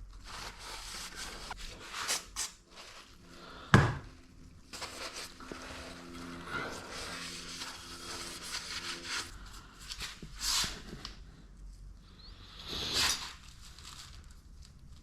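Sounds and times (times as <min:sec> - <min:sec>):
scraping hiss: 0:12.3 - 0:14.2.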